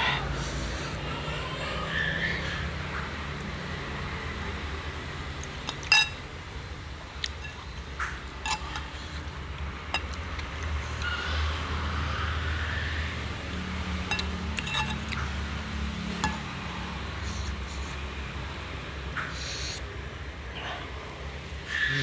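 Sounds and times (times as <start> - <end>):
chewing noises: 5.3 - 6.3, 7.0 - 11.7, 13.5 - 19.9
spoon clinking against a dish: 5.6 - 6.3, 7.2 - 11.1, 14.0 - 17.5.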